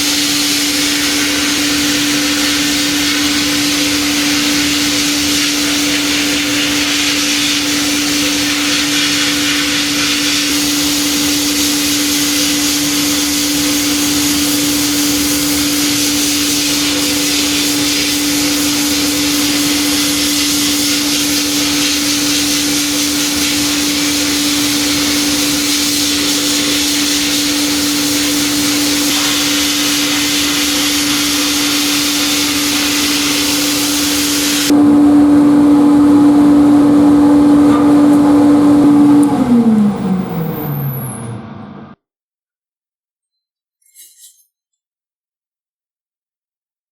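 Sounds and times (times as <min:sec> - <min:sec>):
sandblaster air and grit rush: 0:00.0 - 0:34.7.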